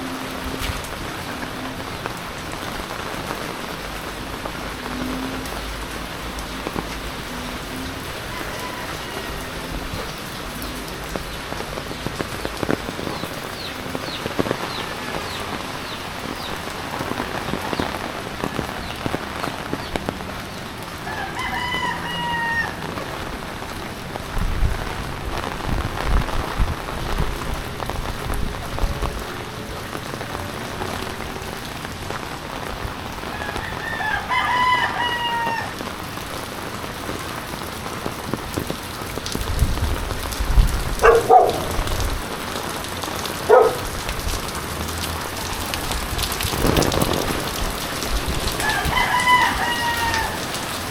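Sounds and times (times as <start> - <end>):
rain pattering: 0.0 - 50.9
rooster crowing: 8.1 - 9.9, 21.0 - 22.8, 33.3 - 35.8, 48.6 - 50.7.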